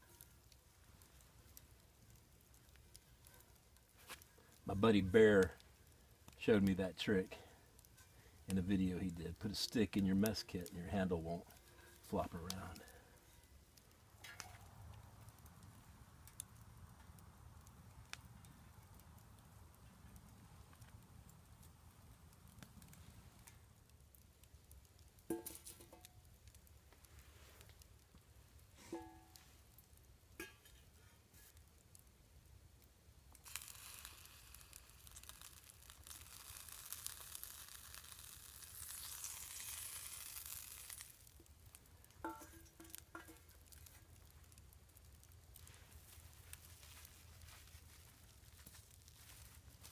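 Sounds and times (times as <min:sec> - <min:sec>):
campfire crackling and popping: 0:00.0 - 0:49.9
food sizzling in frying pan: 0:33.4 - 0:41.4.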